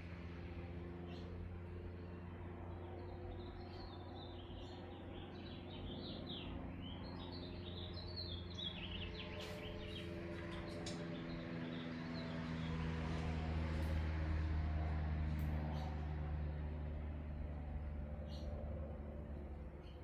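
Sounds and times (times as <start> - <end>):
birds chirping: 2.0 - 14.2.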